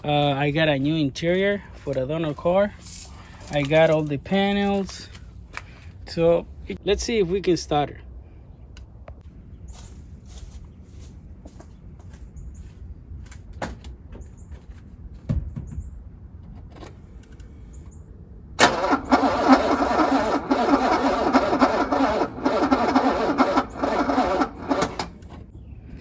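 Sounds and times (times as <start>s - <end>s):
starter motor cranking: 18.6s - 25.3s.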